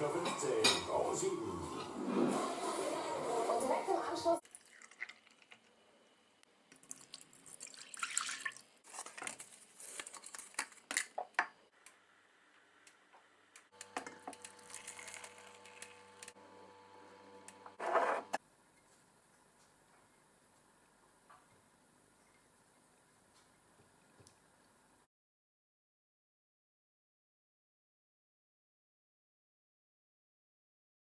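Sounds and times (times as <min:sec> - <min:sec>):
electric hum: 0:13.5 - 0:18.4.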